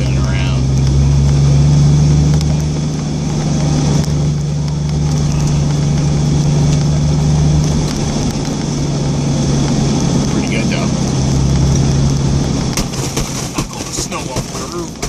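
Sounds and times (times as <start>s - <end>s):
engine drone from inside cabin: 0.0s - 15.0s
tyre and road noise: 0.0s - 15.0s.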